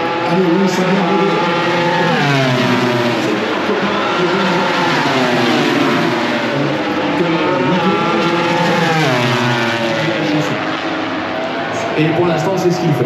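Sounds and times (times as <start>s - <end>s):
racing motorcycle engines: 0.0s - 13.0s.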